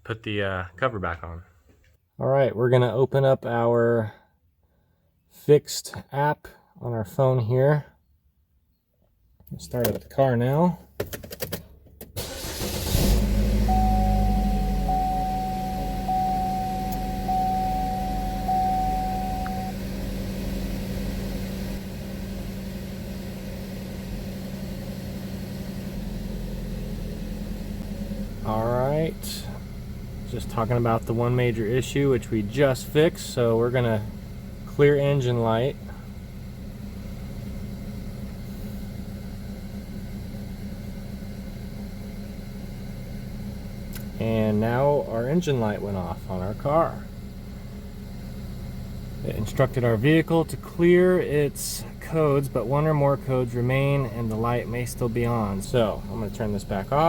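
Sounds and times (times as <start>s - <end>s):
car engine idling: 12.2s - 57.0s
dashboard warning chime: 13.3s - 19.9s.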